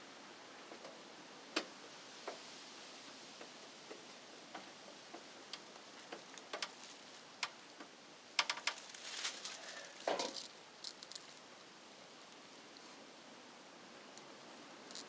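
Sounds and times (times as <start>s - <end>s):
rattle of clicks: 8.4s - 9.0s.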